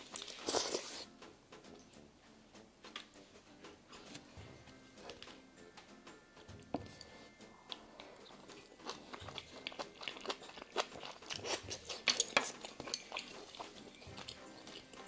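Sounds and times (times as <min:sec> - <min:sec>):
soft crunches of chewing: 0:00.0 - 0:01.1, 0:07.7 - 0:15.0
wet mouth clicks while chewing: 0:07.7 - 0:15.0.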